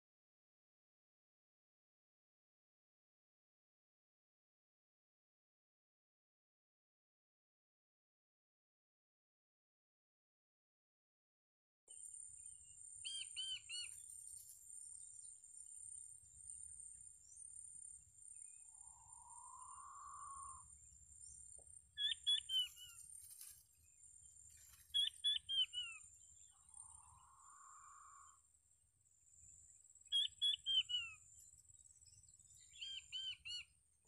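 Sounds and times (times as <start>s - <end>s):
bird chirping: 11.9s - 28.5s, 29.1s - 33.8s.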